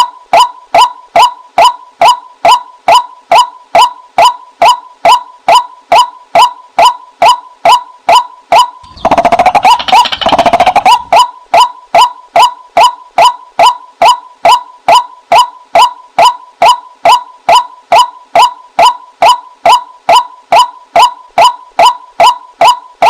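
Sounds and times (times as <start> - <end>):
waterhen calls: 8.8 - 11.3.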